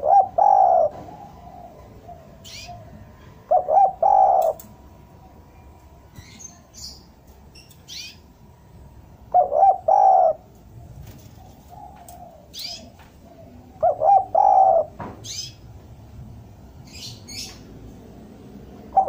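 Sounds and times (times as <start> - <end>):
dove cooing: 0.0 - 4.7, 9.3 - 15.6, 18.8 - 19.0
small birds chirping: 0.0 - 15.8, 16.8 - 19.0.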